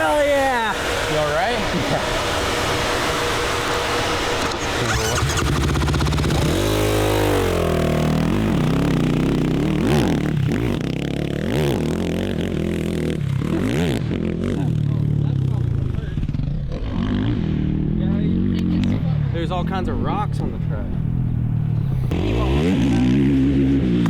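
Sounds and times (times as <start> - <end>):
quad engine revving: 0.0 - 24.0.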